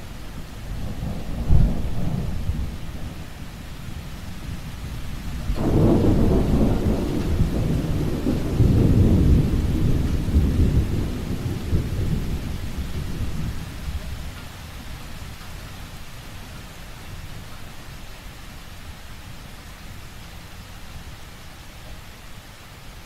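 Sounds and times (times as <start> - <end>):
steady rain: 0.0 - 23.0
thunder rumbling: 5.4 - 13.9.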